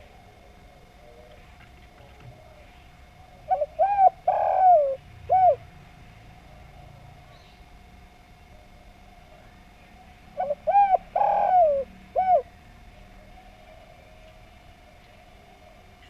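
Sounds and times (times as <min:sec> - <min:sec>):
dove cooing: 0:00.0 - 0:05.7, 0:10.0 - 0:16.0.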